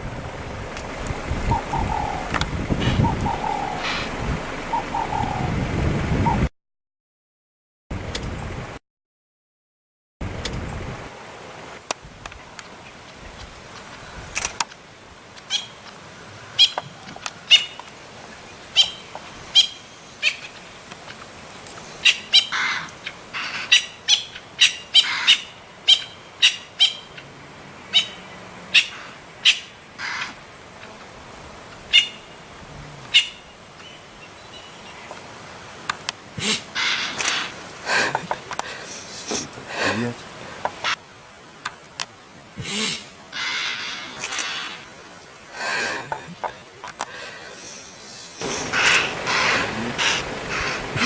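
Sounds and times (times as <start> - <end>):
birds calling: 0.0 - 6.5, 15.3 - 51.0
faint background hiss: 10.3 - 51.0.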